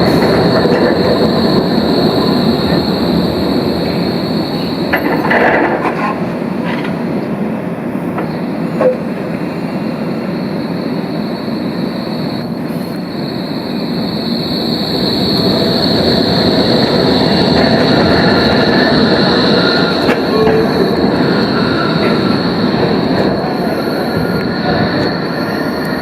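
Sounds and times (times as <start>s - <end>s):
tram rumbling on rails: 0.0s - 26.0s
high-pitched whine: 8.1s - 26.0s.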